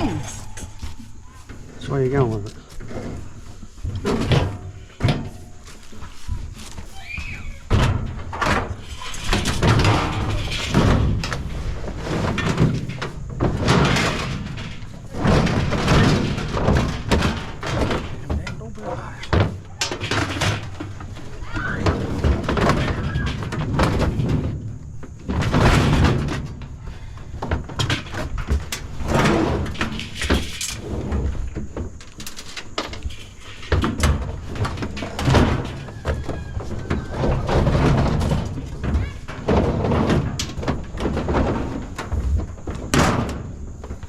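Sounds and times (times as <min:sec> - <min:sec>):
scrap metal clanking and thudding: 0:00.0 - 0:07.0, 0:07.6 - 0:44.0
metal crashes: 0:07.4 - 0:24.6.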